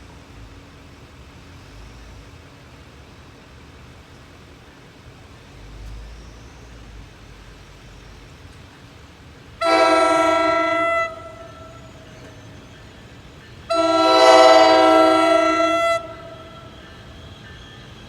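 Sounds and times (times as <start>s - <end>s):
train air horn blast: 9.6s - 12.0s, 13.7s - 16.9s.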